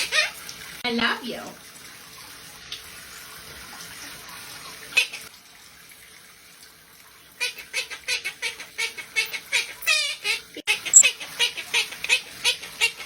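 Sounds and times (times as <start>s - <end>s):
water running from a tap: 0.0s - 10.6s
parrot chattering: 7.4s - 13.0s.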